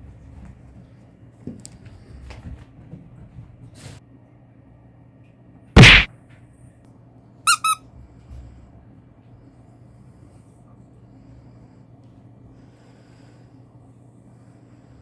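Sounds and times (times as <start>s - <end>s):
loud thump: 5.8s - 6.1s
short high-pitched squeaks: 7.5s - 7.8s.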